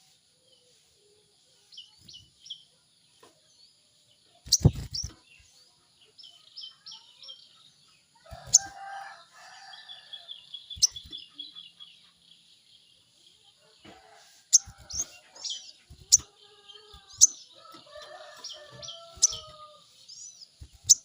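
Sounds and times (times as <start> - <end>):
songbird chirping and trilling: 0.0 - 21.0
rooster crowing: 8.3 - 10.3, 17.6 - 20.0.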